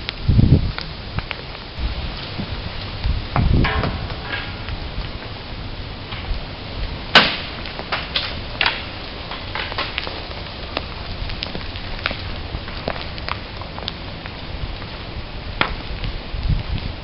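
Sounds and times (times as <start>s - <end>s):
acorns hitting the ground: 7.2s - 13.8s.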